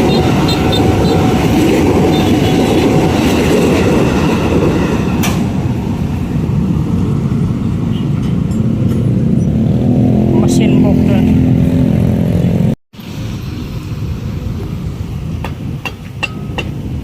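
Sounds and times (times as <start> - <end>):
train wheels rumbling on rails: 0.0 - 11.0, 13.0 - 17.0.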